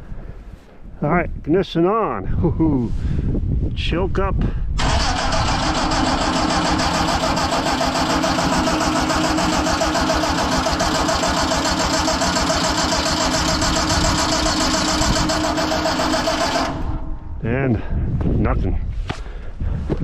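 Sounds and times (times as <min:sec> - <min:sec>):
tractor starter cranking engine: 0:04.8 - 0:17.2.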